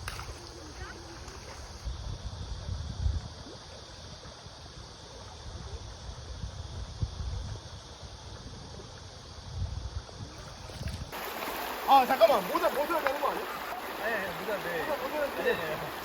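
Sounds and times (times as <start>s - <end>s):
stream water rushing: 10.4s - 16.0s.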